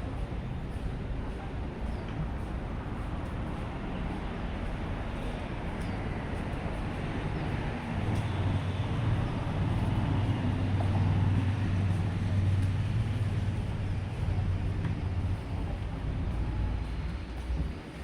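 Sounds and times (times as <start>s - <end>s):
road traffic noise: 0.0s - 18.0s
vehicle engine rumbling: 0.0s - 18.0s.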